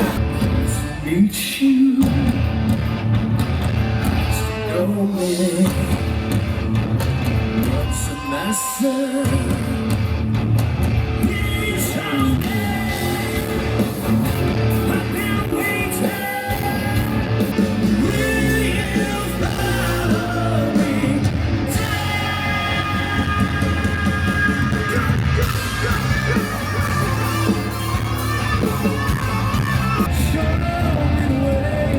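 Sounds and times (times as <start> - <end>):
person singing: 0.0 - 2.5, 4.3 - 6.0, 7.6 - 10.0, 11.2 - 14.0, 14.6 - 31.9
crowd yelling: 0.0 - 31.9
live rock band: 0.0 - 31.9.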